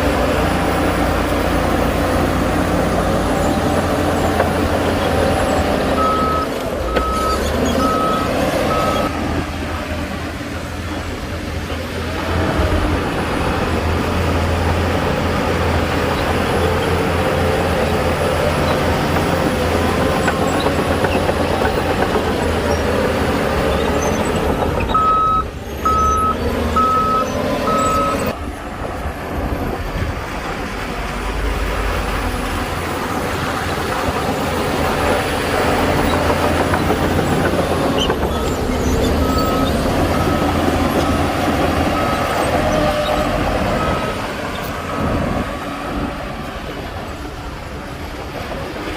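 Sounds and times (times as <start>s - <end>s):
heavy machinery engine drone: 0.0s - 48.9s
reversing alarm beeps: 6.0s - 9.1s, 24.9s - 28.3s.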